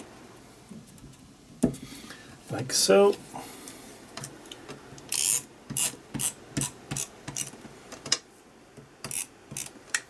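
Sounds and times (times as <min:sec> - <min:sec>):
hand tool ratcheting strokes: 0:05.1 - 0:07.6, 0:09.0 - 0:10.0.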